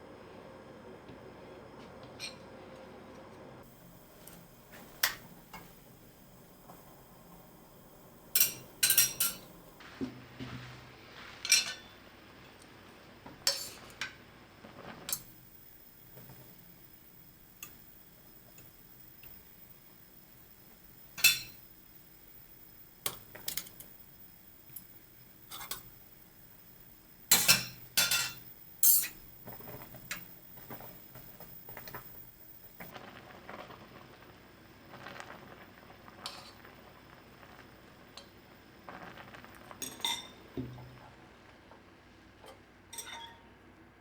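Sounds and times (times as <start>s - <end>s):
utensils and dishes clinking: 2.2s - 2.4s, 8.4s - 9.6s, 11.4s - 12.0s, 27.3s - 29.2s, 42.9s - 43.5s.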